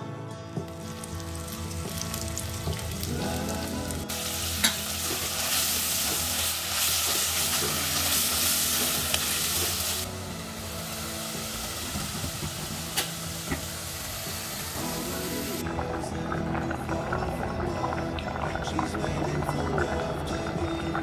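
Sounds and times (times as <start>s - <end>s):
vegetables sizzling in clay pot: 0.7s - 15.6s.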